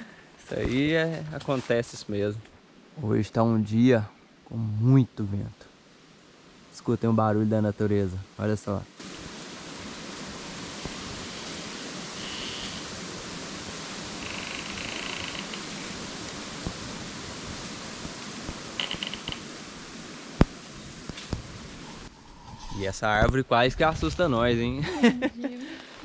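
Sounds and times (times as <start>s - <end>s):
wind rustling leaves: 0.0s - 26.0s
branches creaking: 10.8s - 22.8s.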